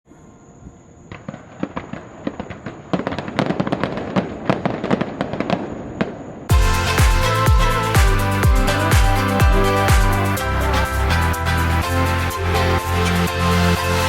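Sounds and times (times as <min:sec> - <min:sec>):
fireworks crackling pops: 0:01.1 - 0:07.3
electronic music with heavy beat: 0:06.5 - 0:14.0.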